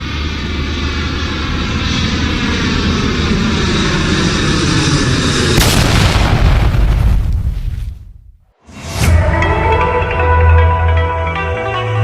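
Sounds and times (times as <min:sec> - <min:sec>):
aircraft-like roar: 0:00.0 - 0:07.4
sudden loud boom: 0:05.6 - 0:09.1.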